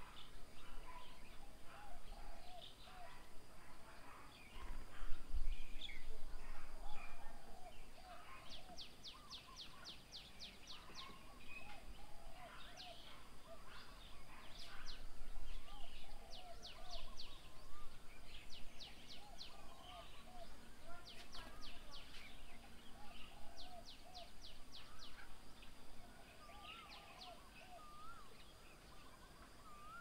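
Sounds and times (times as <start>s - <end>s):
birds whistling high falling notes: 26.4s - 30.0s.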